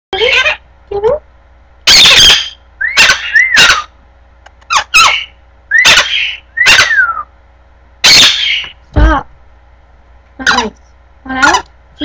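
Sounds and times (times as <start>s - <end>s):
parrot harsh screeches: 1.9s - 3.9s, 4.7s - 7.3s, 8.0s - 8.7s.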